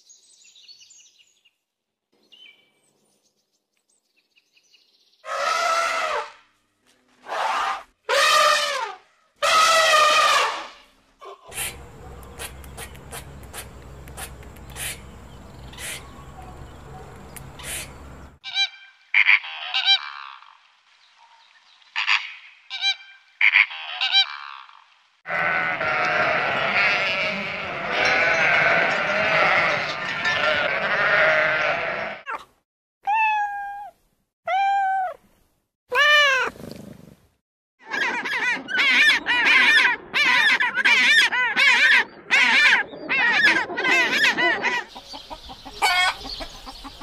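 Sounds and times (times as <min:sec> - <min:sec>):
flamingos calling: 0:11.2 - 0:15.1, 0:15.7 - 0:16.2
sharp clicks: 0:12.2 - 0:15.1, 0:17.1 - 0:17.5
cat meowing: 0:33.0 - 0:35.2, 0:35.9 - 0:36.6.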